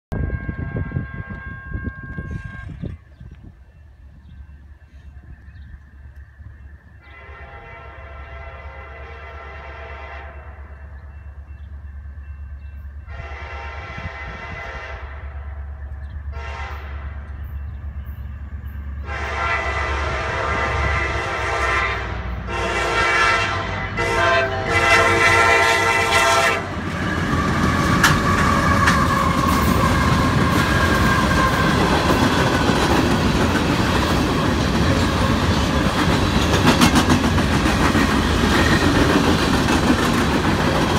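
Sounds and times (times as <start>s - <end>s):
train air horn blasts: 0.1s - 3.0s, 7.0s - 10.8s, 13.0s - 15.7s, 16.3s - 17.4s, 19.0s - 32.2s
diesel locomotive rumble: 0.1s - 40.9s
train wheels clattering over rails: 26.7s - 40.9s.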